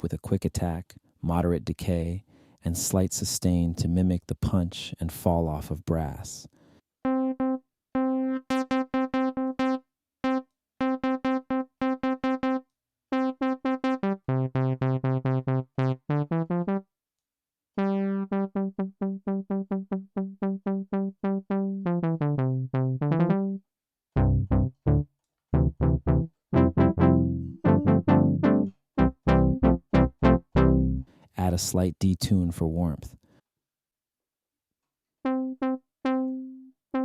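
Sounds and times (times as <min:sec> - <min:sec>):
synth brass notes: 0:13.2 - 0:16.8, 0:17.8 - 0:23.6, 0:24.2 - 0:31.1.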